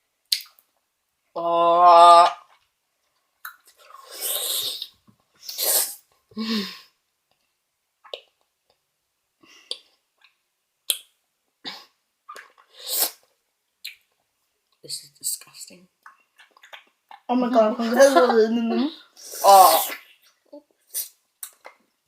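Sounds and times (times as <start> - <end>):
mouth clicks: 0.3 - 0.6, 9.6 - 11.2.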